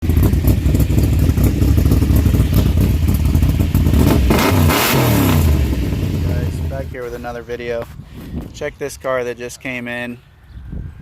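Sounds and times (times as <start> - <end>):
car engine idling and revving: 0.0 - 7.4.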